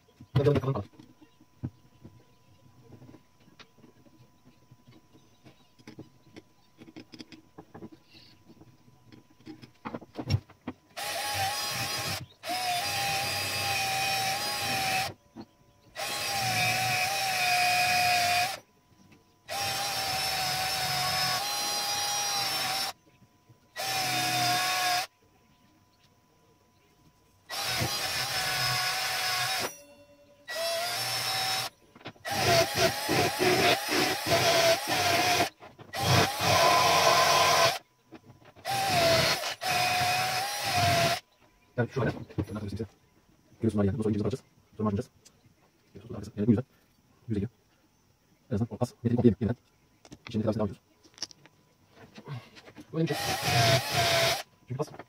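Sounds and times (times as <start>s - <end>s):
power tool motor whine: 11.0s - 15.2s, 16.0s - 18.6s, 19.5s - 23.0s, 23.8s - 25.1s, 27.5s - 29.7s, 30.5s - 37.8s, 38.6s - 41.2s, 53.1s - 54.5s.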